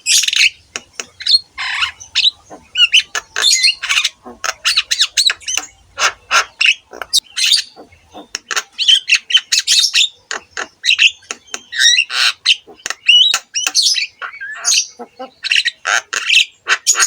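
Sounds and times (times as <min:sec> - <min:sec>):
myna singing squawks and whistles: 0:00.0 - 0:17.0.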